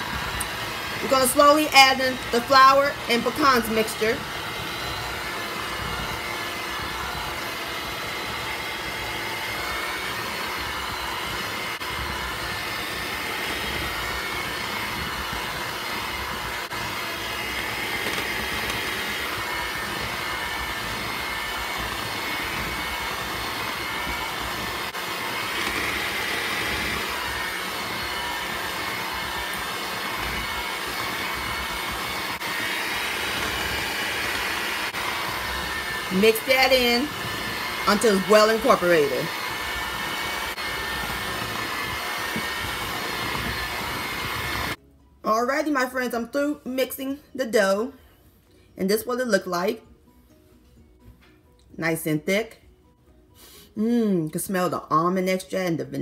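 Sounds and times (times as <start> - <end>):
electric mixer running: 0.0 - 44.8.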